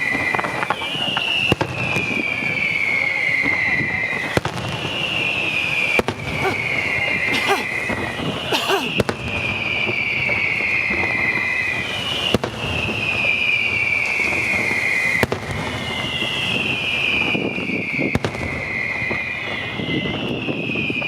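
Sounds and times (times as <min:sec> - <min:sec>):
firework bangs: 0:00.0 - 0:21.0
firework whistles sliding down: 0:00.0 - 0:21.0.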